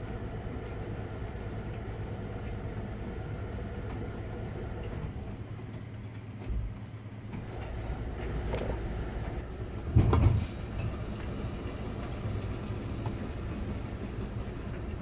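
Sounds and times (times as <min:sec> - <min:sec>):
washing machine motor hum: 0:00.0 - 0:15.0.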